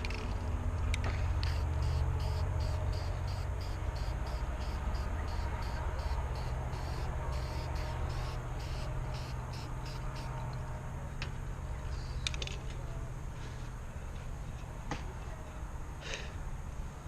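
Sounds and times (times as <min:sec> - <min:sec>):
steady low rumble: 0:00.0 - 0:17.0
insects chirping: 0:01.4 - 0:10.6.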